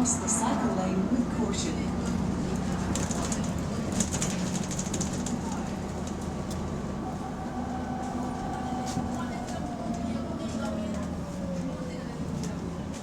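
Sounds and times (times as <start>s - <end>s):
bus engine droning: 0.0s - 13.0s
rattling and clicking: 2.5s - 6.6s.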